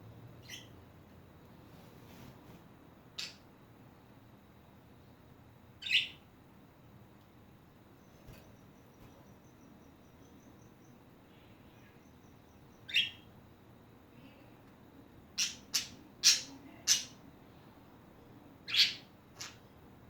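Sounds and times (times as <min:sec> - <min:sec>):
budgerigars chirping: 0:12.9 - 0:13.2, 0:18.7 - 0:19.6.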